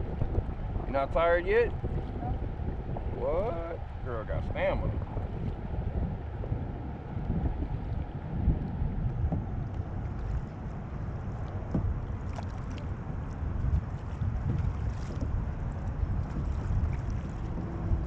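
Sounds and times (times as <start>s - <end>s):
wind rumbling on microphone: 0.0s - 18.0s
paddle splashes: 6.9s - 18.0s.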